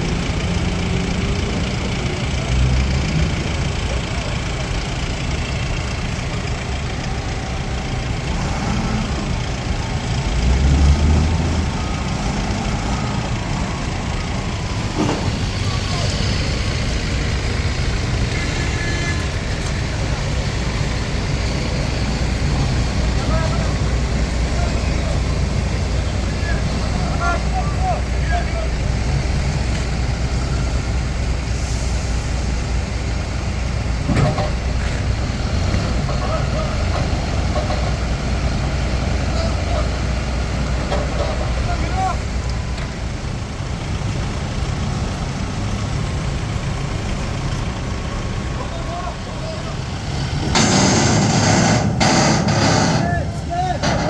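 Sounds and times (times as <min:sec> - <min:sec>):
pile driver diesel engine rumbling: 0:00.0 - 0:54.0.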